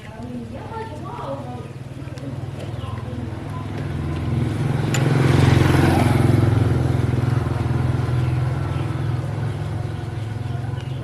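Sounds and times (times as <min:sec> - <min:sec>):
small engine running: 0:02.7 - 0:11.0.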